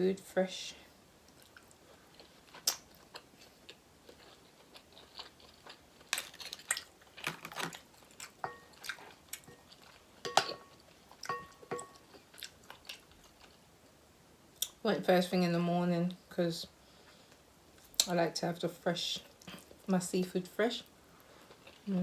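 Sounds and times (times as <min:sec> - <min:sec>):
chewing and handling shellfish: 0:01.3 - 0:13.6.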